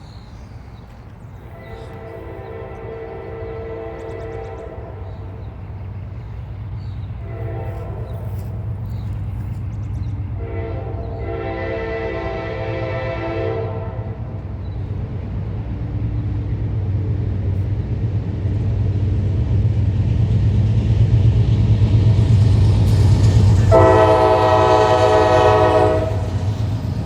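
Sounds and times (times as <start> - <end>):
train rumble: 0.0 - 27.0
train air horn: 1.5 - 5.5, 7.2 - 8.9, 10.3 - 14.4, 22.9 - 26.6.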